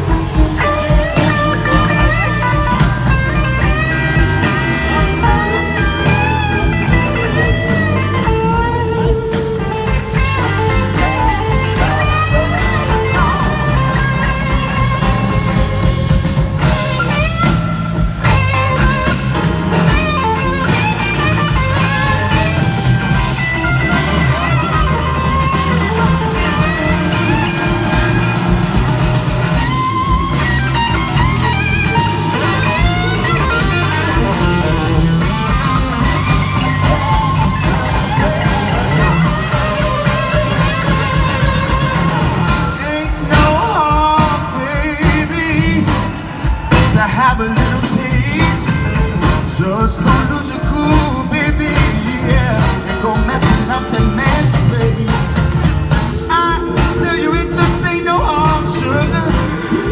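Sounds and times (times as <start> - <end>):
electric guitar solo: 0.0 - 43.9
blues-rock band playing: 0.0 - 59.9.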